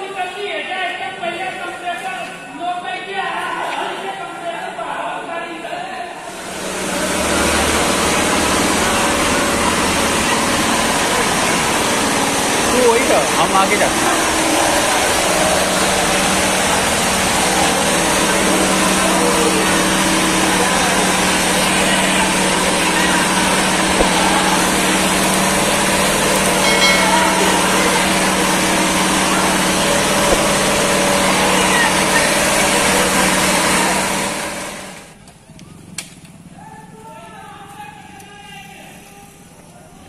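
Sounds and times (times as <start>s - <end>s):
small engine running: 6.3s - 35.2s.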